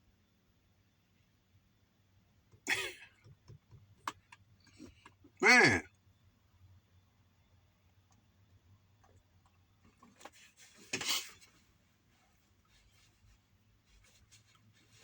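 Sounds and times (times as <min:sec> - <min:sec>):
short scrape or rustle: 0:10.5 - 0:11.6.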